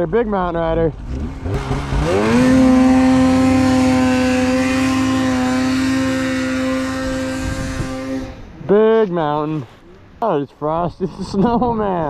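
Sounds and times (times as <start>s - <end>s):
snowmobile engine revving: 0.5s - 8.6s.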